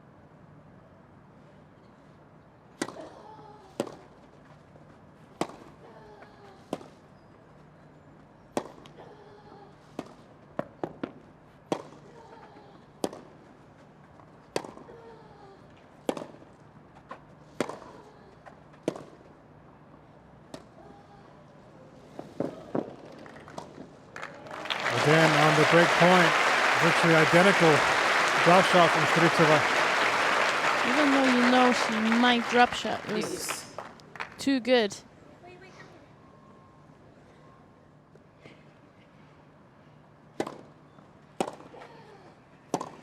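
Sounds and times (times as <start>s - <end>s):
tennis balls struck by rackets: 40.4s - 40.6s, 41.4s - 41.7s.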